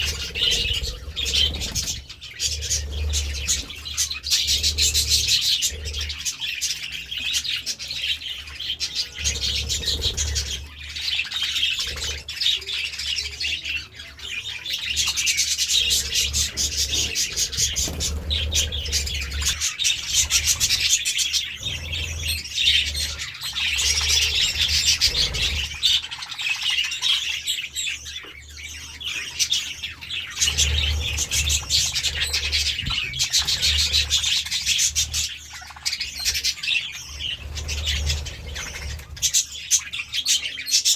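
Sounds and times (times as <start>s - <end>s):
budgies chattering and warbling: 0.0s - 40.9s.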